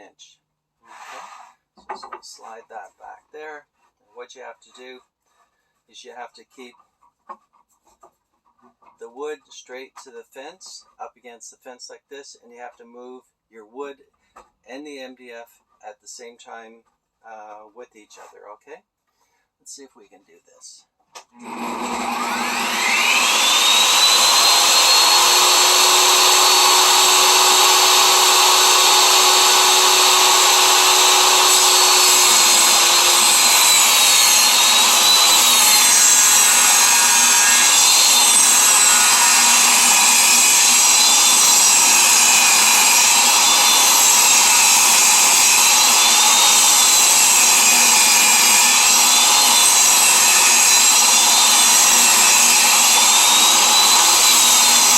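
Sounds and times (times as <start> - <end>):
saw blade ripping wood: 21.4 - 54.9
table saw motor whine: 21.4 - 54.9.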